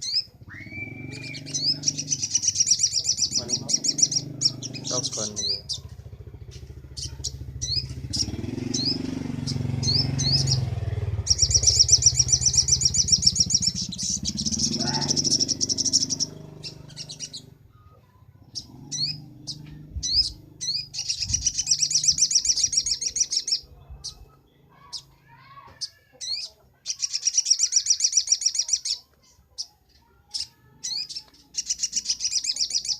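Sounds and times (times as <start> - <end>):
bird fast high trill: 0.0 - 5.8, 6.5 - 17.6
bird chirping: 0.0 - 32.9.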